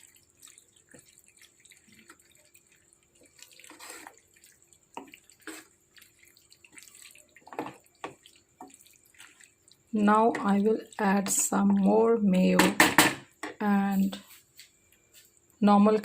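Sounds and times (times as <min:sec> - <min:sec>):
sauce bubbling and popping: 0:00.0 - 0:12.5.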